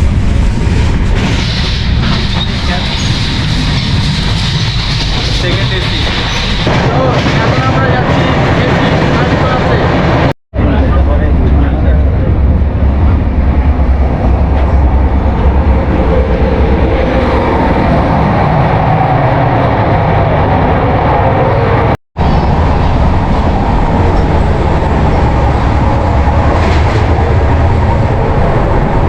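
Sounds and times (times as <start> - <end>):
train wheels rumbling on track: 0.0 - 29.0.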